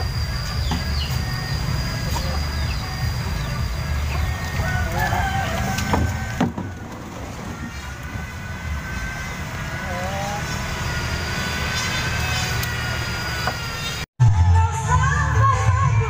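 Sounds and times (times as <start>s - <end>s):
wooden cabinet knocks: 5.8s - 6.7s.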